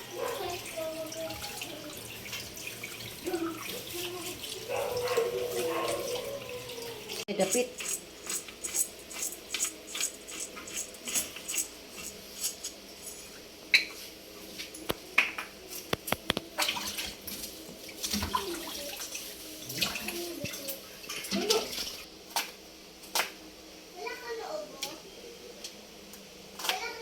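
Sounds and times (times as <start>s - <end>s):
water splashing and sloshing: 0.0s - 8.7s, 16.2s - 22.1s.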